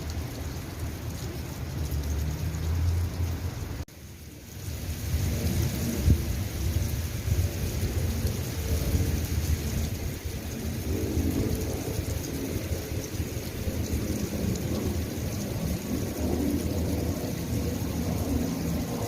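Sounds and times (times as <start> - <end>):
steady rain: 0.0 - 19.0
rolling thunder: 5.0 - 19.0.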